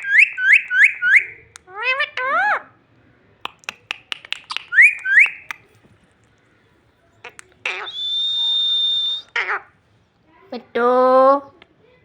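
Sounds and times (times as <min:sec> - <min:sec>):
parrot clicking: 0:03.4 - 0:05.7
parrot whistling: 0:04.2 - 0:05.6, 0:07.7 - 0:09.6.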